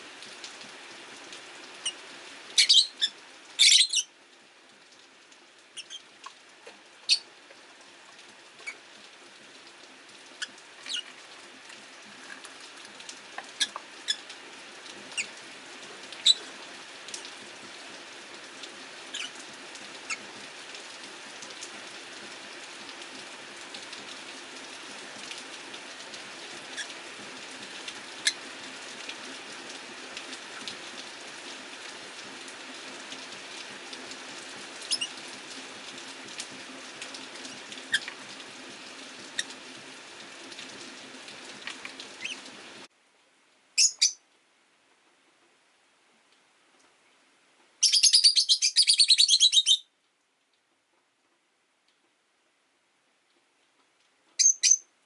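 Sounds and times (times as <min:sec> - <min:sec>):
rain hissing: 0:00.0 - 0:44.2.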